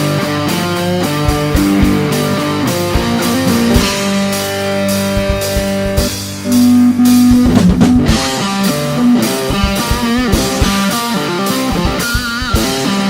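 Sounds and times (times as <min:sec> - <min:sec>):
electric guitar: 0:01.1 - 0:05.8
bent wavering guitar note: 0:01.4 - 0:05.2
drum kit: 0:01.4 - 0:08.2.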